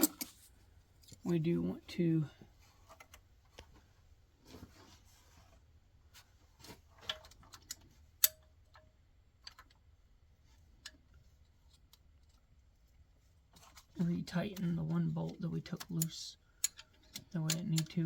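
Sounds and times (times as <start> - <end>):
metallic clicks of hand tools: 0.0 - 0.4, 7.1 - 9.7, 15.7 - 18.0.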